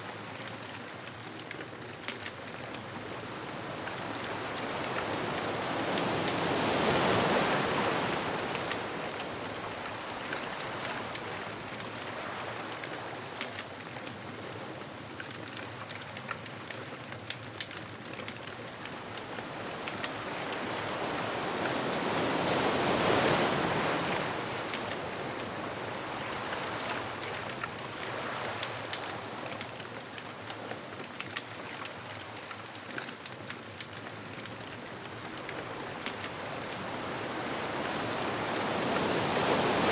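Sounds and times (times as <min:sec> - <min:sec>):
bonfire crackling: 0:00.1 - 0:39.9
surf washing: 0:02.9 - 0:13.4, 0:18.7 - 0:31.8, 0:34.3 - 0:39.9
ocean waves crashing: 0:04.3 - 0:11.2, 0:19.4 - 0:28.9, 0:35.4 - 0:39.9.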